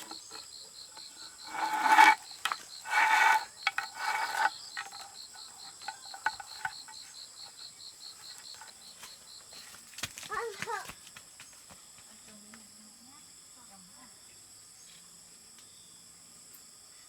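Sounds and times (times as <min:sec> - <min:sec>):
insect chirping: 0:00.0 - 0:09.8
harsh rasping strokes: 0:01.4 - 0:06.7.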